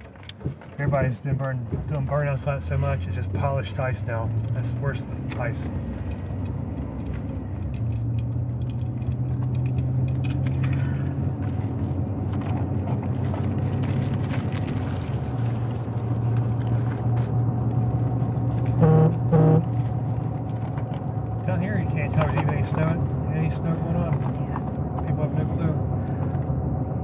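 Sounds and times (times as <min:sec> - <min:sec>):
vehicle cabin road noise: 0:00.0 - 0:27.0
brief pitched sound: 0:18.8 - 0:19.7.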